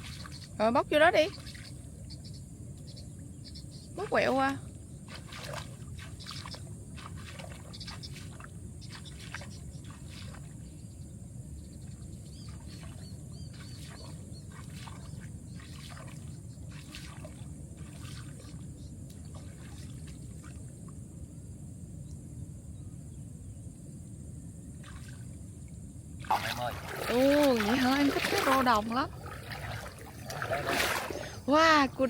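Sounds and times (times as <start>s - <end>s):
water dripping and splashing: 5.1s - 10.5s, 12.5s - 20.6s, 26.2s - 31.6s.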